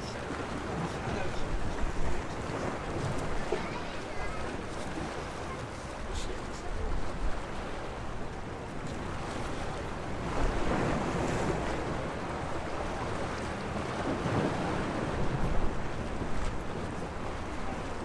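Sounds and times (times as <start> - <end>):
sea waves washing onto shore: 0.0 - 18.0
wind buffeting microphone: 6.6 - 18.0.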